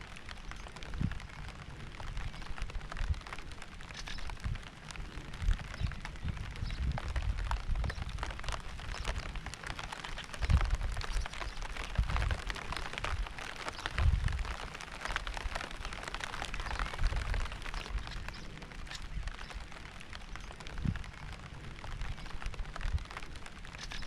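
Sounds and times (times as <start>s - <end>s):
raindrops pattering: 0.0s - 24.0s.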